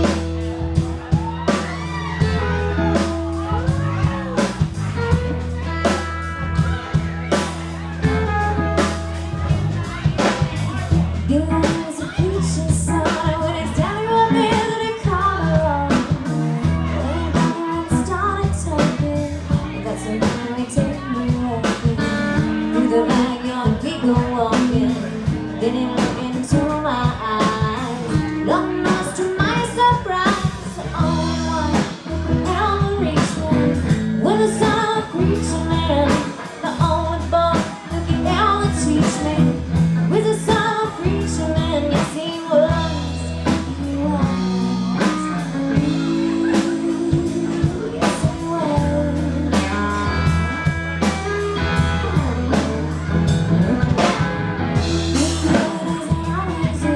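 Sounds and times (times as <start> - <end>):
blues-rock band playing: 0.0 - 56.9
person singing: 9.5 - 52.6, 54.8 - 56.9.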